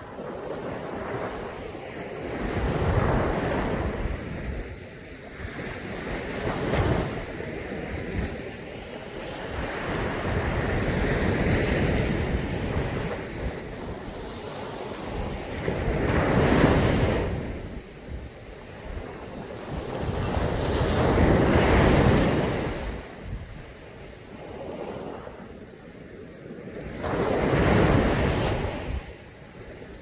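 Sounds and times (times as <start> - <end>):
wind buffeting microphone: 0.0 - 25.6, 26.5 - 30.0
surf breaking on a beach: 0.0 - 30.0.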